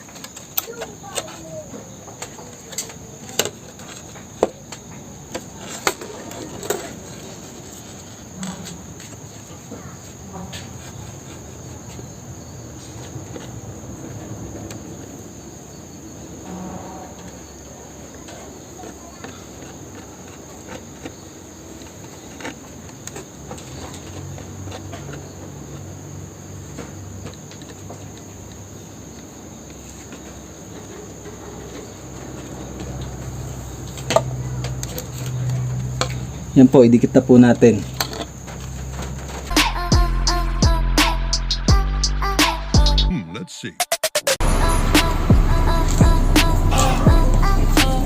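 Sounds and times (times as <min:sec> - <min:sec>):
low hum: 0:44.4 - 0:48.0
steady high hiss: 0:44.4 - 0:48.0.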